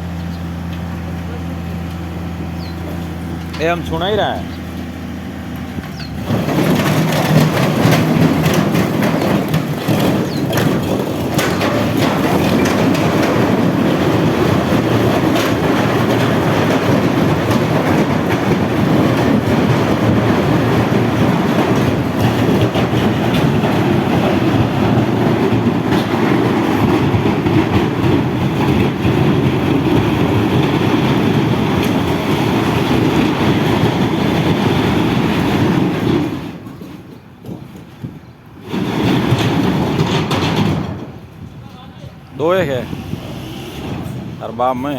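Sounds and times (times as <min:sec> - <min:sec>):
heavy vehicle rumbling clatter: 0:00.0 - 0:44.9
sharp clanks: 0:05.6 - 0:41.5.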